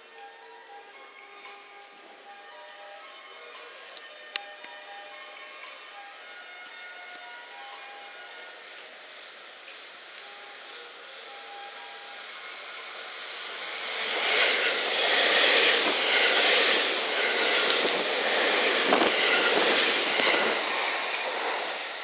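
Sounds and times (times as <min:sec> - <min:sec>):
electric train rushing past: 0:05.1 - 0:22.0.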